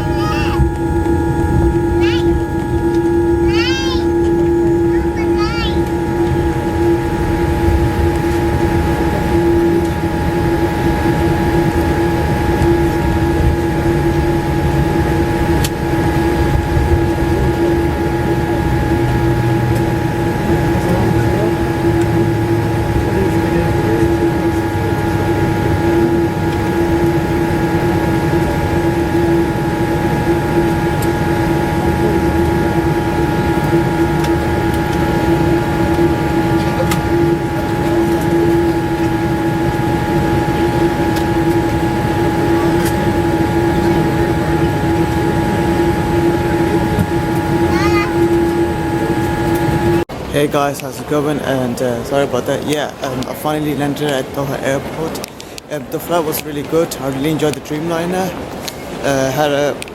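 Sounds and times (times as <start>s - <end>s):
airliner cabin rumble: 0.0s - 59.9s
steady whining tones: 0.0s - 59.9s.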